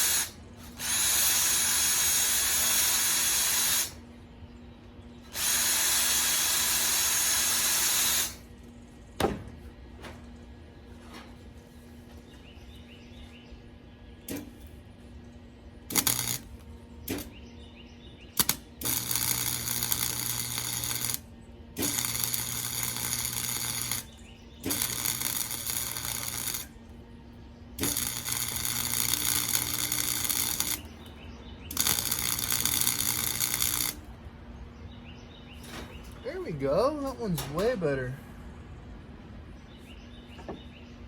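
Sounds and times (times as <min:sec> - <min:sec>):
arc welding crackle: 0:00.0 - 0:04.0, 0:05.3 - 0:08.5, 0:14.3 - 0:14.7, 0:15.8 - 0:17.4, 0:18.4 - 0:27.0, 0:27.8 - 0:34.2
low electrical hum: 0:00.0 - 0:41.0.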